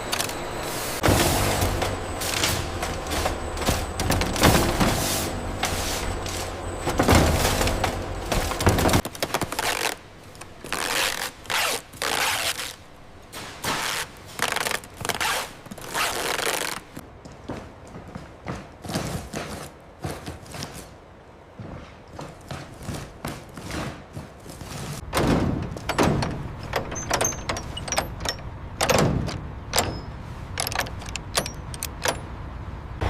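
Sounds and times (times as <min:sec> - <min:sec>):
heavy machinery clattering: 0:00.0 - 0:09.3, 0:25.0 - 0:32.5.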